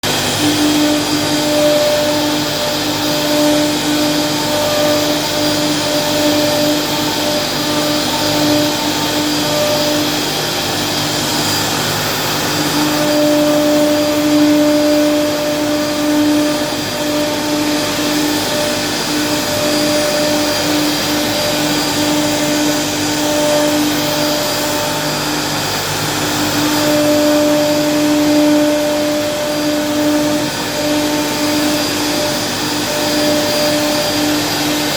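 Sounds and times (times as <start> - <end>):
cnc machine cutting: 0.0 - 34.9.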